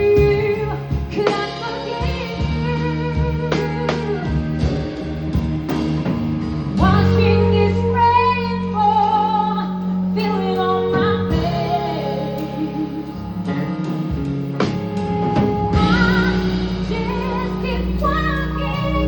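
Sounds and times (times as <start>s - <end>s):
woman singing: 0.0s - 4.5s, 6.8s - 13.7s, 15.4s - 19.0s
live band playing ballad: 0.0s - 19.0s.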